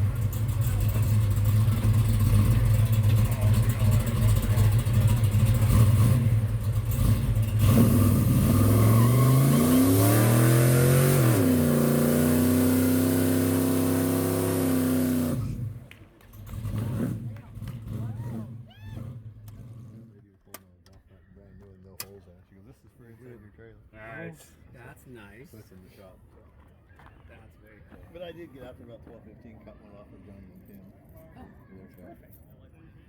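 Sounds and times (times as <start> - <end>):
car engine idling and revving: 0.0 - 20.5.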